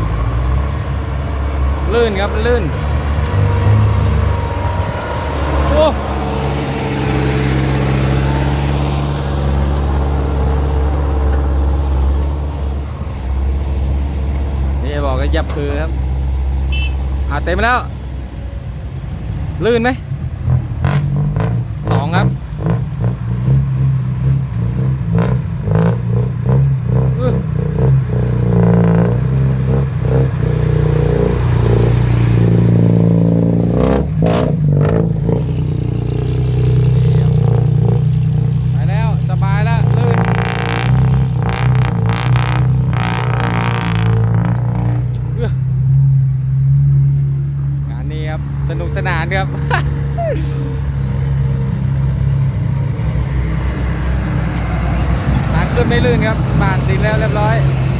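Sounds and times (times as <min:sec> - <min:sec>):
truck diesel engine droning: 0:00.0 - 0:57.9.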